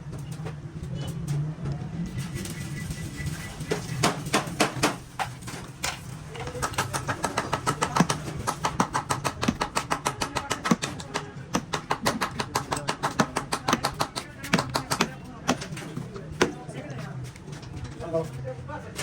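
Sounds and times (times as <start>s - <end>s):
hammer striking sheet metal: 6.5s - 16.6s.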